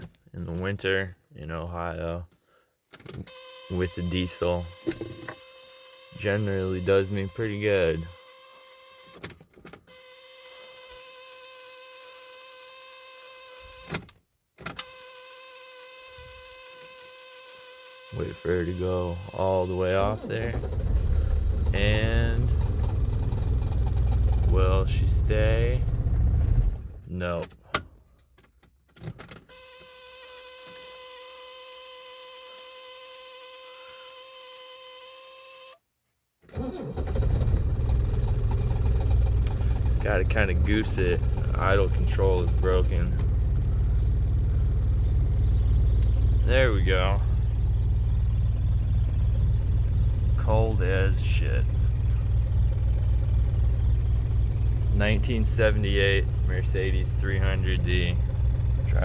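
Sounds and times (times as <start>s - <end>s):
diesel engine cranking and running: 3.3s - 11.0s, 18.1s - 27.0s, 36.5s - 59.0s
electrical whine: 38.9s - 59.0s.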